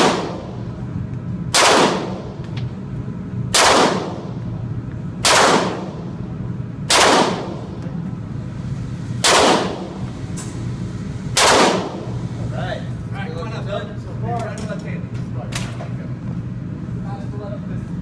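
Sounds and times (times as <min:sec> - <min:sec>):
gunshots with ringing tail: 0:00.0 - 0:00.5, 0:01.5 - 0:02.3, 0:03.5 - 0:04.2, 0:05.2 - 0:06.0, 0:06.9 - 0:07.6, 0:09.2 - 0:09.9, 0:11.4 - 0:12.0.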